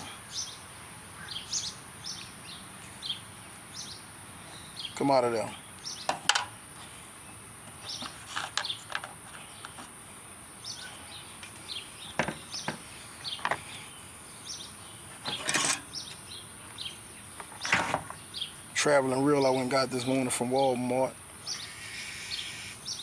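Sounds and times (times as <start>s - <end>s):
bird chirps: 0.0s - 6.2s, 10.6s - 20.8s, 21.4s - 23.0s.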